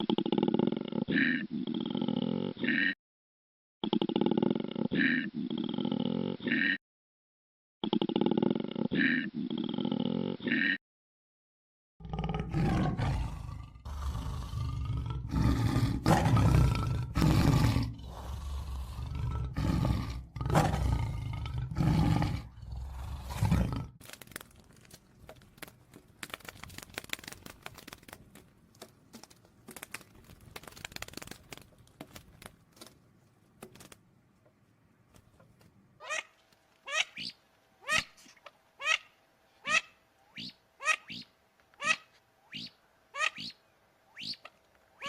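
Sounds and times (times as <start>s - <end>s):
big cat roaring and growling: 12.0s - 24.0s
faint clicks and crunches: 24.0s - 35.8s.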